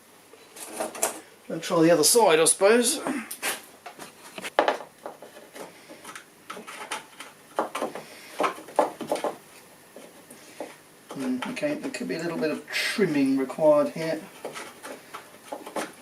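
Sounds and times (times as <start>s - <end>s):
clicks and knocks of handled parts: 14.4s - 16.0s.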